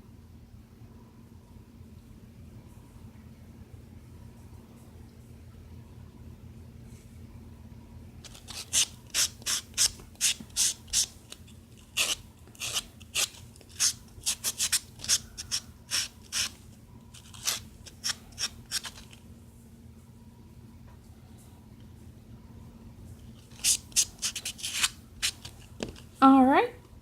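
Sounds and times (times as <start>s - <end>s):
sanding sponge rasping on nail: 8.3s - 11.1s, 11.9s - 16.6s, 17.2s - 19.1s, 23.5s - 25.5s.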